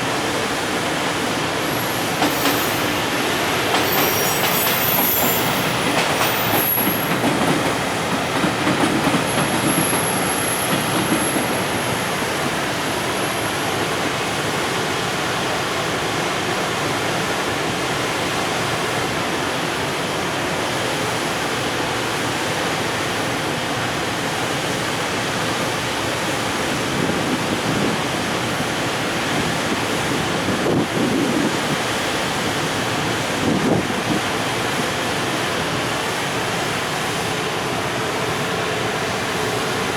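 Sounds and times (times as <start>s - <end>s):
train wheels rumbling on rails: 0.0s - 39.9s
high wheel squeal: 1.6s - 7.2s, 9.2s - 13.8s.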